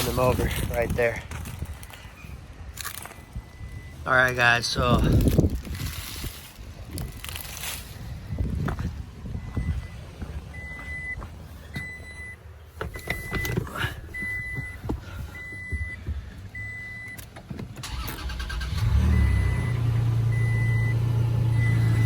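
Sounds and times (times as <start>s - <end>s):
car engine starting and idling: 0.0s - 22.0s
dashboard warning chime beeping: 3.4s - 5.0s, 8.0s - 22.0s.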